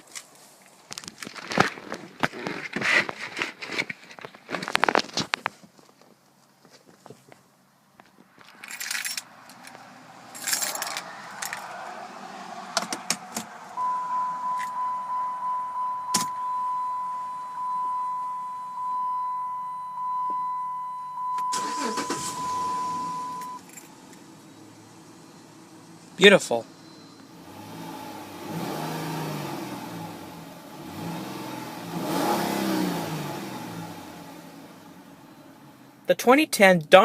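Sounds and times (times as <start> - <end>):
keys jangling: 8.4 - 9.8, 10.4 - 11.6
car warning chime: 13.8 - 23.7.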